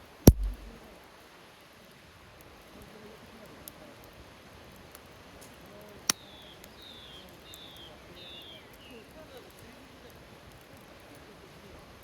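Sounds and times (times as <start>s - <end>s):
campfire crackling: 0.3s - 0.8s, 2.5s - 12.0s
loud sharp pop: 0.3s - 0.8s.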